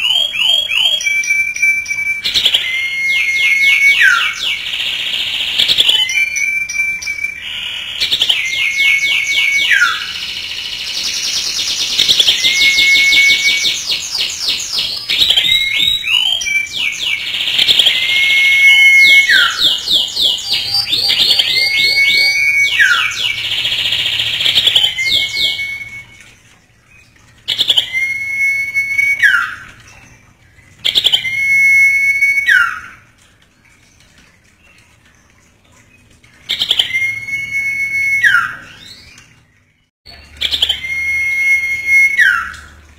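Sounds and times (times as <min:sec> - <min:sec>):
bird whistling descending note: 0:00.2 - 0:10.2, 0:12.0 - 0:13.9, 0:15.1 - 0:26.2, 0:36.8 - 0:39.0, 0:40.4 - 0:42.7.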